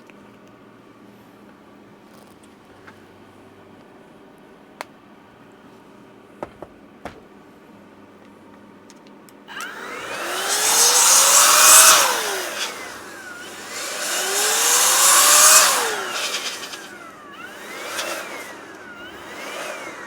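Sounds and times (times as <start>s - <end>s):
electric air blower whining: 9.5s - 20.0s.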